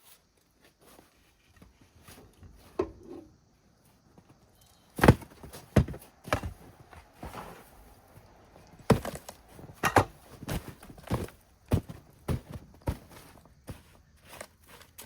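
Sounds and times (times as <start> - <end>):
crunching thuds in packed snow: 5.0 - 15.0.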